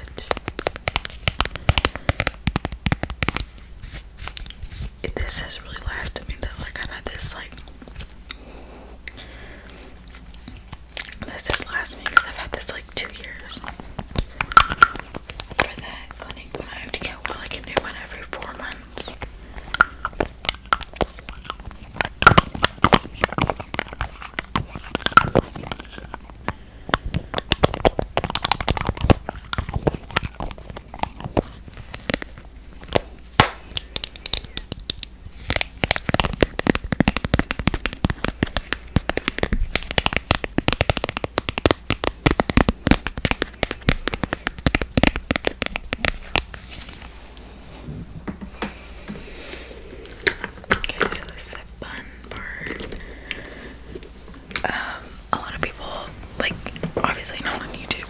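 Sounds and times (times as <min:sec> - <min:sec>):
taps on plastic packaging: 0:00.1 - 0:03.6, 0:14.0 - 0:18.0, 0:19.7 - 0:32.3, 0:32.9 - 0:46.6.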